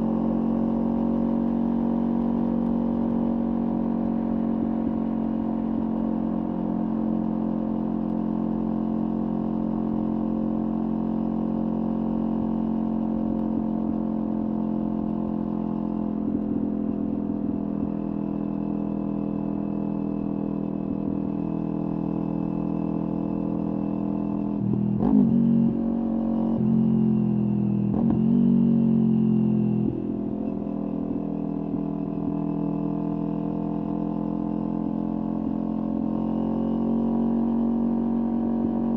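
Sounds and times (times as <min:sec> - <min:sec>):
motorcycle engine running: 0:00.0 - 0:38.9
motorcycle engine revving: 0:24.4 - 0:31.1.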